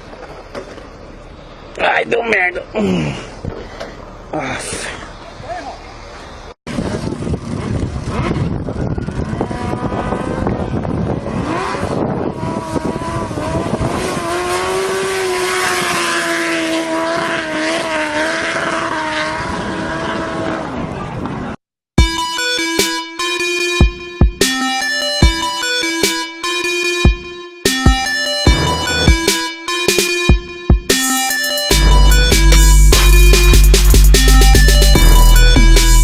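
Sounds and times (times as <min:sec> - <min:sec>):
wind and road noise: 0:00.0 - 0:21.6, 0:31.7 - 0:36.0
motorcycle engine at speed: 0:06.7 - 0:21.5, 0:28.5 - 0:29.4, 0:31.7 - 0:36.0.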